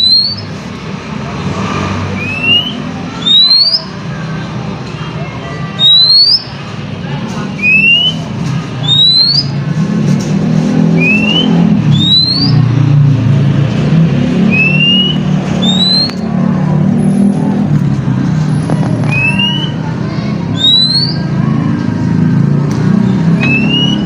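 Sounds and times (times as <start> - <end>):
bird whistling calls: 0.0 - 0.5, 2.2 - 3.9, 5.8 - 6.6, 7.6 - 9.6, 10.9 - 12.7, 14.5 - 16.3, 19.1 - 19.8, 20.5 - 21.4, 23.3 - 24.0
low engine rumble: 0.0 - 24.0.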